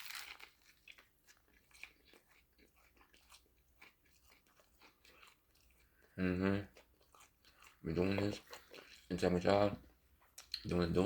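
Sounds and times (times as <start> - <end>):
crunchy bite: 0.0 - 1.0
person chewing food: 0.0 - 11.0.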